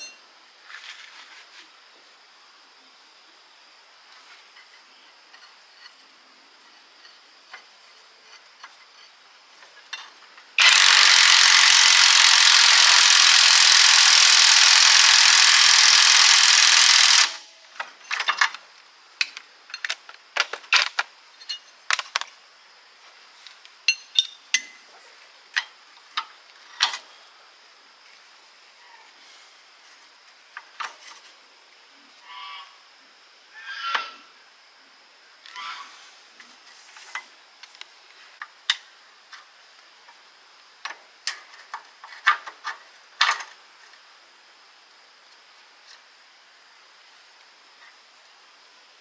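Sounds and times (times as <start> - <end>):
metal parts clicking and knocking: 10.0 - 18.6
workshop tool rushing noise: 10.6 - 17.6.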